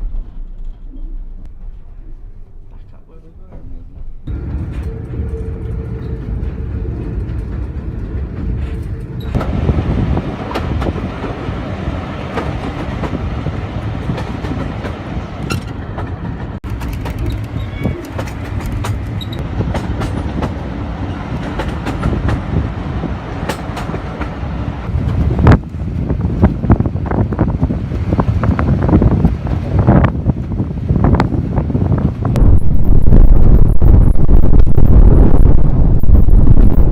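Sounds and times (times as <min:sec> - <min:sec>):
railway carriage rumble: 0:00.0 - 0:36.9
wheels clicking over rail joints: 0:14.0 - 0:20.6.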